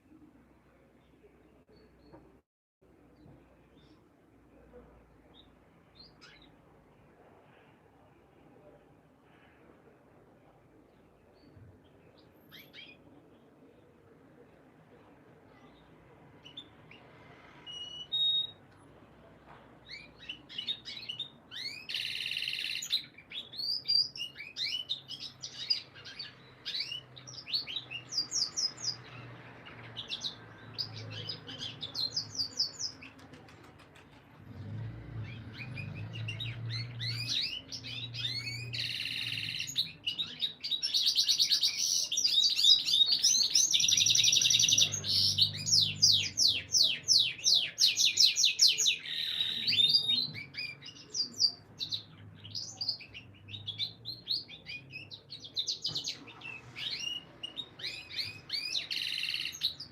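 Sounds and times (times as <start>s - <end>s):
canary singing: 16.4s - 18.7s, 19.9s - 33.1s, 35.2s - 59.9s.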